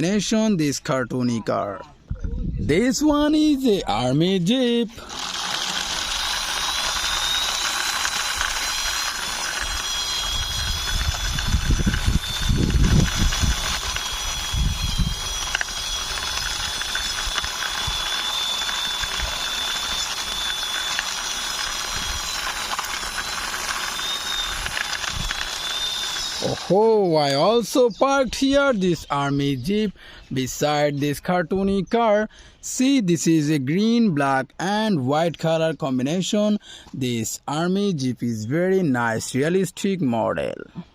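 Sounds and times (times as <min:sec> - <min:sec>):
toy wheels and gears whirring: 0:02.9 - 0:31.8.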